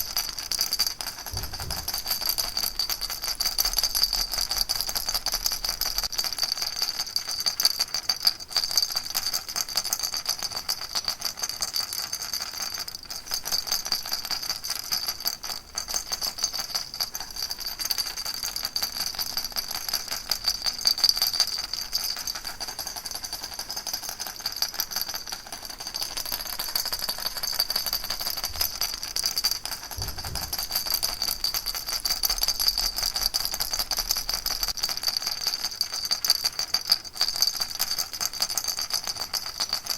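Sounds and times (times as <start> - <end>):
baby rattle shaken: 0.0 - 6.0, 15.8 - 39.9.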